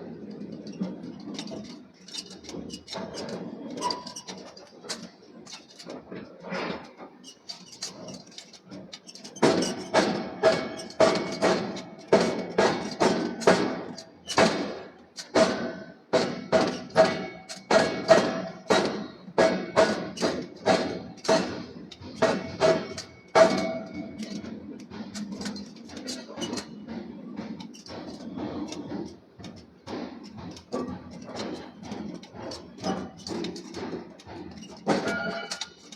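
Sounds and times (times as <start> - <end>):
hammer striking steel on anvil: 9.4 - 24.5, 29.9 - 35.9.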